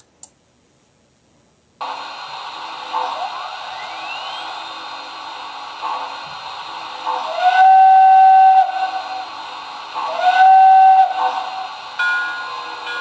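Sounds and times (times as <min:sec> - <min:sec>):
background hiss: 0:00.0 - 0:13.0
steam-style train whistle: 0:03.0 - 0:04.8, 0:07.1 - 0:09.4, 0:10.0 - 0:12.9.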